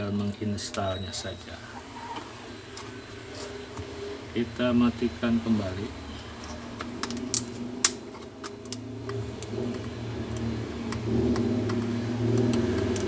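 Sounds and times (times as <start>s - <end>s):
steady low hum: 0.0s - 13.0s
laptop clicks and taps: 6.8s - 13.0s.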